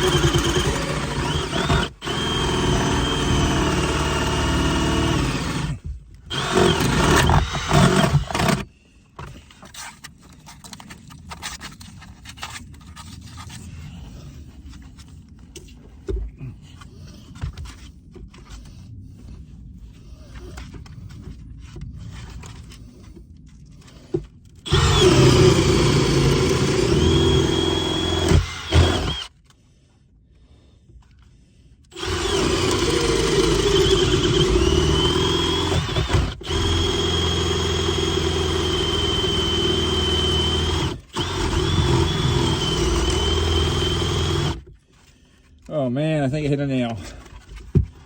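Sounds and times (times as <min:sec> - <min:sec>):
power tool motor running: 0:00.0 - 0:08.6, 0:24.7 - 0:29.3, 0:31.9 - 0:44.6.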